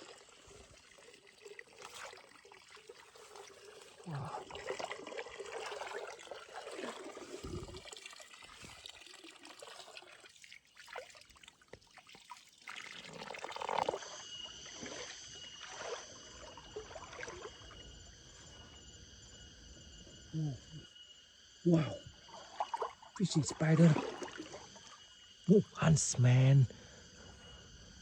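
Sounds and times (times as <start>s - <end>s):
water trickling: 0.0s - 17.9s
high-pitched insect chorus: 0.0s - 28.0s.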